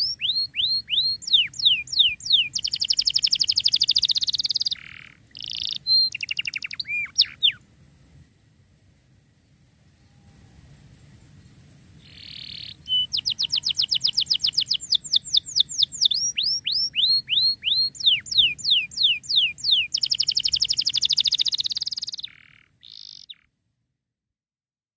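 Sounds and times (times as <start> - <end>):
canary singing: 0.0 - 7.6, 12.0 - 23.5.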